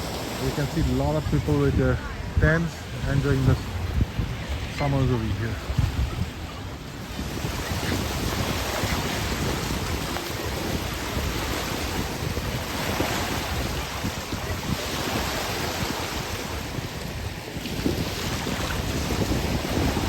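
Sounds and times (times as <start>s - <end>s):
small waves washing onto beach: 0.0s - 20.0s
wind on microphone: 0.0s - 20.0s.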